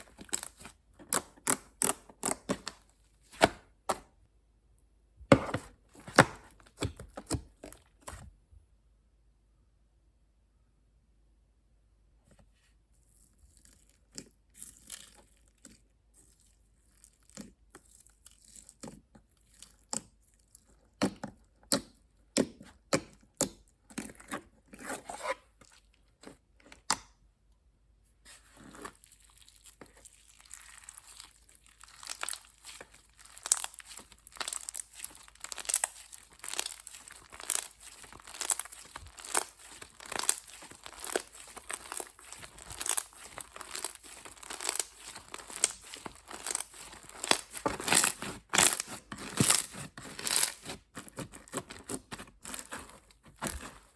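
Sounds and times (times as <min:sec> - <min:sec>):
slime popping and crackling: 0:00.0 - 0:02.8, 0:28.7 - 0:53.9.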